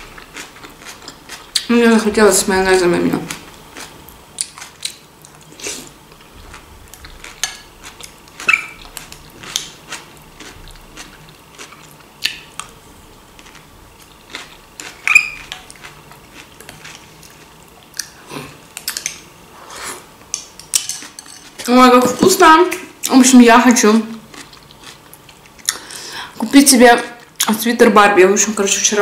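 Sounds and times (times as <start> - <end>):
wet chewing smacks and clicks: 3.7 - 5.5, 6.1 - 12.8.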